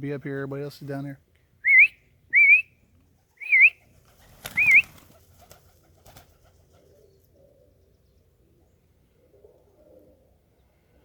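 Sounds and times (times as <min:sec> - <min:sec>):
person whistling: 0:01.7 - 0:02.7
pigeons cooing: 0:04.2 - 0:11.0.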